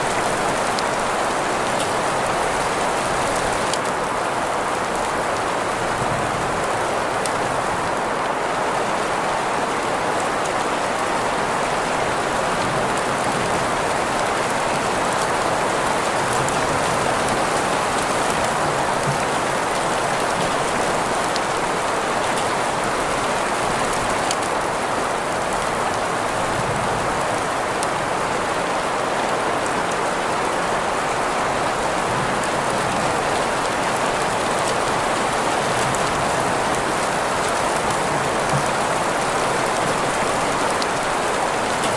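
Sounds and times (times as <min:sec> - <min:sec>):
steady rain hiss: 0:00.0 - 0:41.9.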